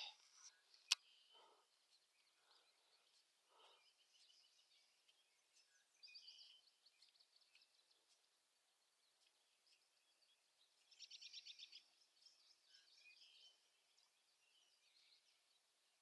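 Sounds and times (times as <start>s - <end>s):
faint bird chirps and trills: 0.0s - 16.0s.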